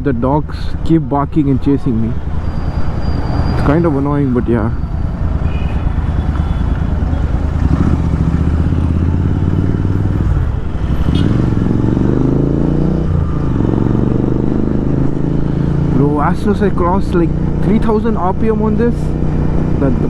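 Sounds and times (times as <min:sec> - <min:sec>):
motorcycle engine running loud: 0:04.9 - 0:20.0.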